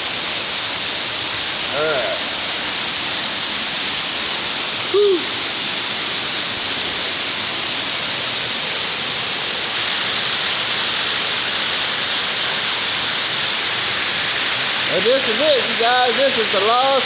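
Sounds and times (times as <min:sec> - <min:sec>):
waterfall rushing: 0:01.6 - 0:02.9, 0:04.2 - 0:07.3, 0:09.2 - 0:17.0.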